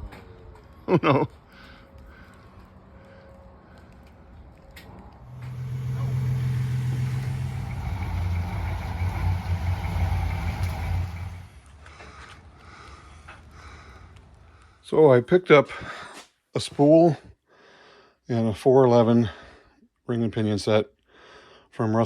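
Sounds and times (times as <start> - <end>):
vehicle engine running: 5.2 - 11.7.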